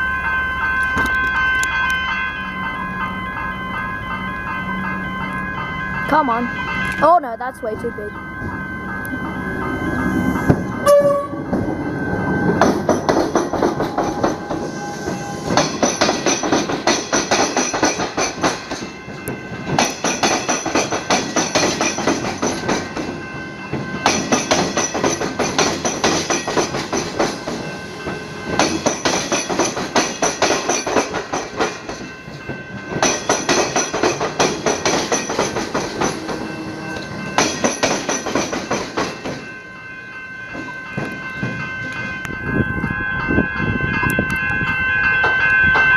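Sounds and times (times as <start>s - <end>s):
short pitched tone: 9.0s - 12.0s
train wheels clattering over crossing: 10.4s - 42.7s.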